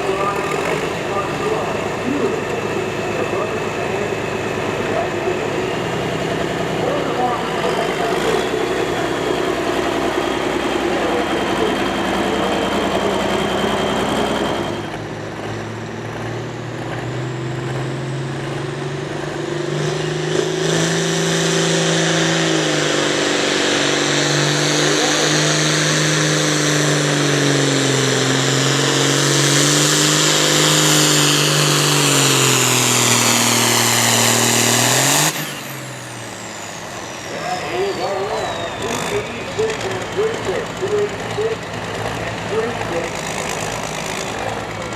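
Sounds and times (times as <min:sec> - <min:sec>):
tractor engine at full power: 0:00.0 - 0:44.9
high turbo whistle: 0:35.3 - 0:39.5.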